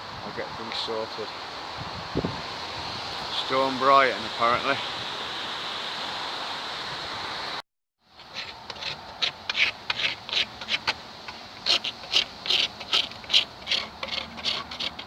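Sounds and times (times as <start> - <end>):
steady rushing noise: 0.0 - 7.6
blade rasping on wood: 8.2 - 15.0.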